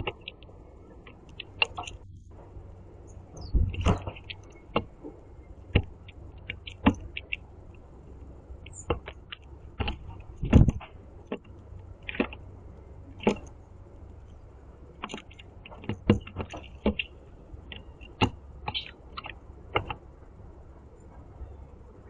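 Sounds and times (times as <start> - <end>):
low steady rumble: 0.0 - 22.0
beak tapping on bird feeder: 1.1 - 2.0, 5.7 - 7.5, 15.0 - 20.0.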